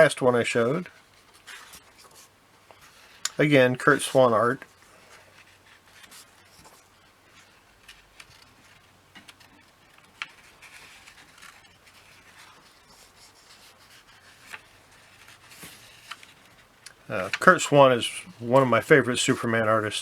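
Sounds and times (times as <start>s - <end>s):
paper pages rustling and turning: 0.6s - 19.7s.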